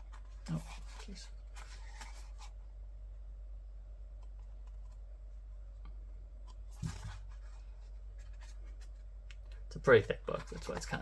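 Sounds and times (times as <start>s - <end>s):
book pages rustling: 0.0s - 2.6s, 6.4s - 11.0s.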